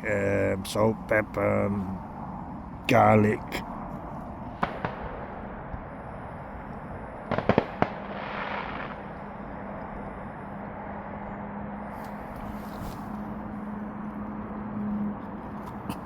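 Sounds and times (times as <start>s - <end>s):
fireworks popping: 7.3s - 9.1s.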